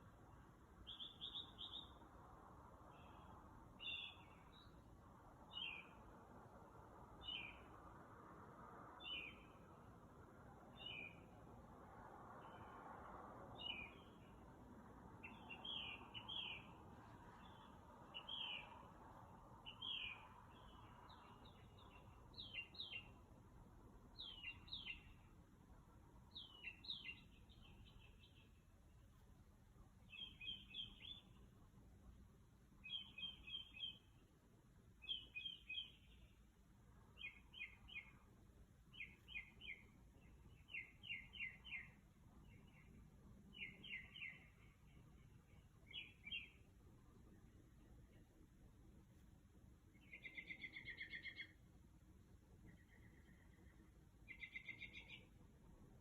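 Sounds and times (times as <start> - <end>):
bird singing short sharp phrases: 0.8 - 2.0, 15.2 - 16.8, 17.4 - 18.9, 19.6 - 23.2, 24.1 - 25.3, 26.3 - 28.6, 30.0 - 31.5, 32.8 - 34.2, 35.0 - 36.4, 37.2 - 38.2, 38.9 - 46.7, 49.9 - 51.6, 52.6 - 55.4.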